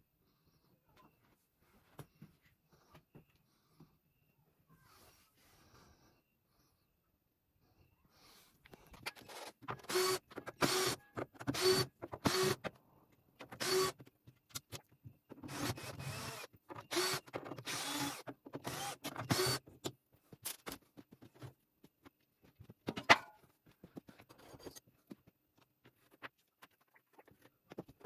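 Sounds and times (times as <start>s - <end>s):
small electric motor whirring: 9.2s - 12.6s, 13.6s - 14.0s, 15.4s - 19.6s.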